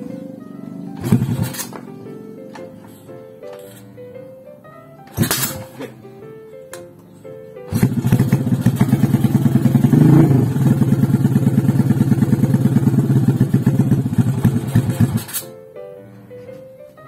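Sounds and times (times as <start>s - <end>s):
motorcycle engine running: 1.0s - 1.8s, 7.7s - 15.4s.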